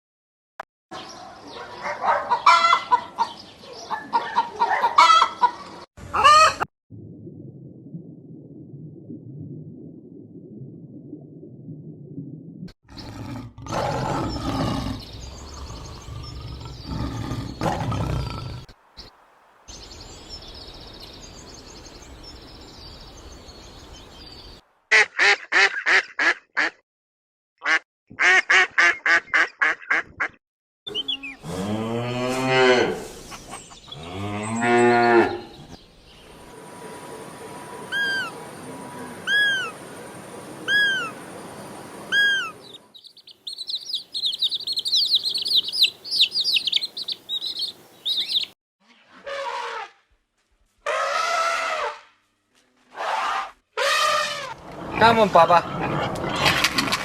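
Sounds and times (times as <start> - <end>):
cow mooing: 31.4 - 33.0.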